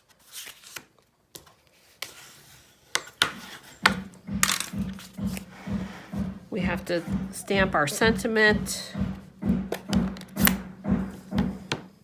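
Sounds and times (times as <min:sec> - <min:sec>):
rhythmic knocking or scraping: 0:03.6 - 0:12.0.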